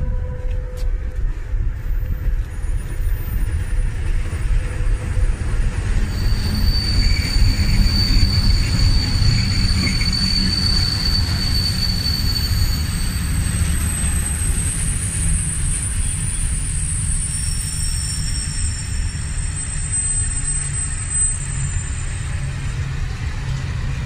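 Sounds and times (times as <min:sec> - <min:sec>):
train wheels rumbling: 0:00.0 - 0:24.0
high-pitched wheel squeal: 0:02.1 - 0:23.0.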